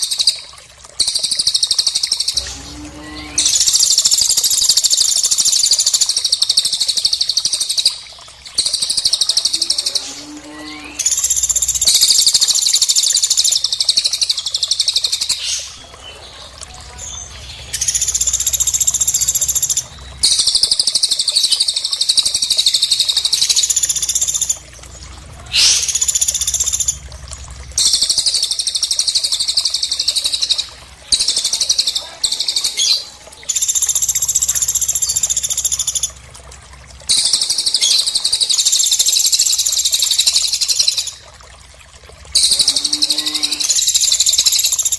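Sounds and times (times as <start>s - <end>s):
high bird trills: 25.5s - 27.0s.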